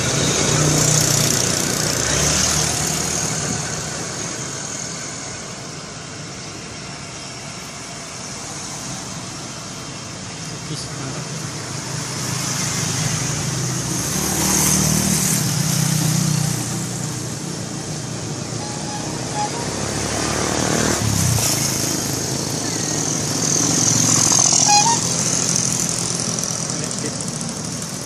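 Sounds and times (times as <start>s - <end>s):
vehicles passing: 0.0s - 28.0s
large engine humming: 13.0s - 28.0s.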